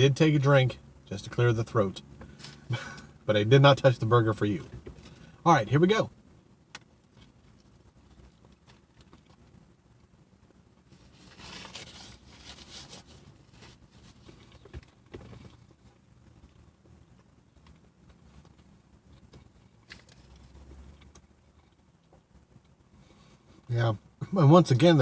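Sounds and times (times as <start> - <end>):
man chewing a burger: 7.1 - 9.5, 10.9 - 23.7.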